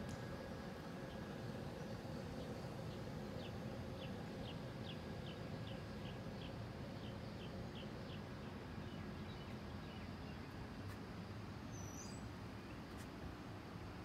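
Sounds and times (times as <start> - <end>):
small bird chirping: 11.7 - 12.3.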